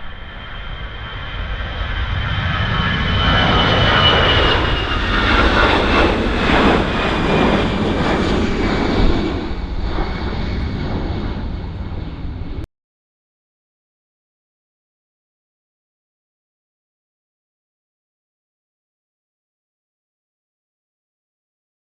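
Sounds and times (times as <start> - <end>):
jet airliner engines passing: 0.0 - 12.7.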